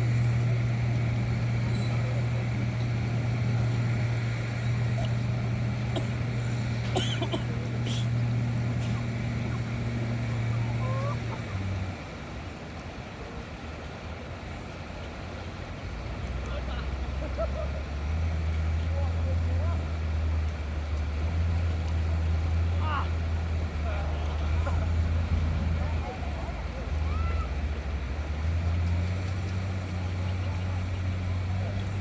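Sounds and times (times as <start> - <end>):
small engine running: 0.0 - 12.2, 16.5 - 32.0
short calls: 3.5 - 11.8.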